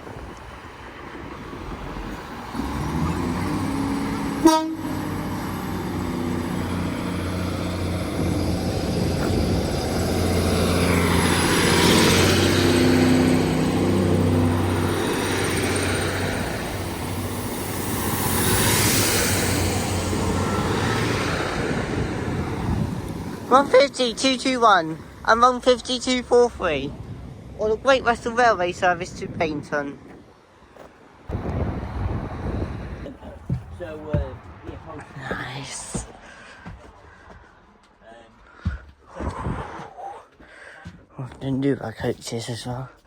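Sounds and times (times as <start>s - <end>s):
train diesel engines revving: 2.0s - 28.4s
train horn toot: 4.4s - 5.0s.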